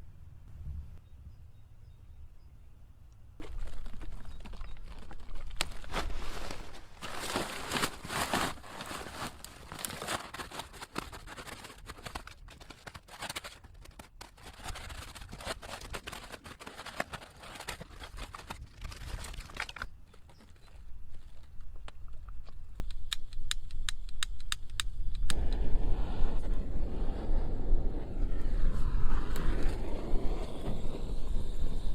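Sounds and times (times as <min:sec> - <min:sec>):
newspaper crumpling: 0:03.4 - 0:21.5
low rushing of flames: 0:23.1 - 0:31.9.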